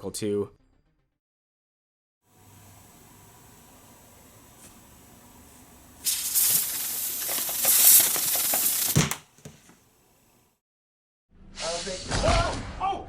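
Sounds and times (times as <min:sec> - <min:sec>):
loud snake hiss: 0:06.0 - 0:09.0.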